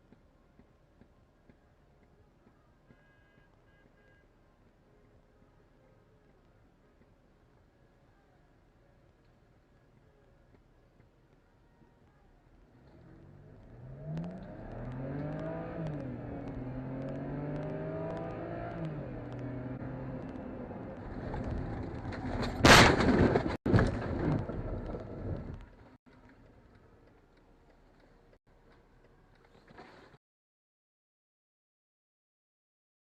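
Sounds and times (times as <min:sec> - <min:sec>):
car engine accelerating: 0:12.6 - 0:22.6
clatter: 0:20.2 - 0:30.2
loud crash: 0:21.0 - 0:25.5.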